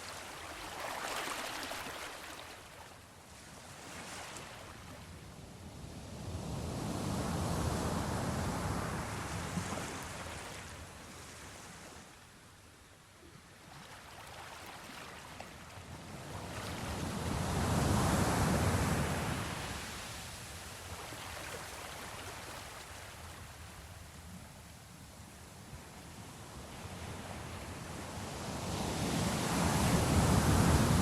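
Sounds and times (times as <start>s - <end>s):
sea waves washing: 0.0s - 2.8s.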